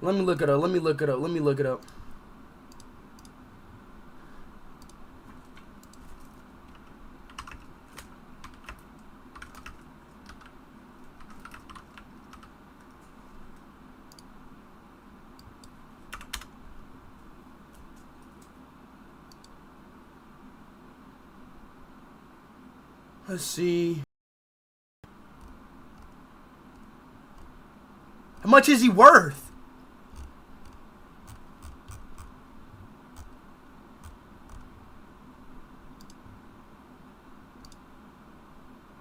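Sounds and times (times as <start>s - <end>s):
typing on computer keyboard: 6.7s - 8.8s, 9.4s - 10.5s, 11.2s - 12.5s, 16.1s - 16.5s.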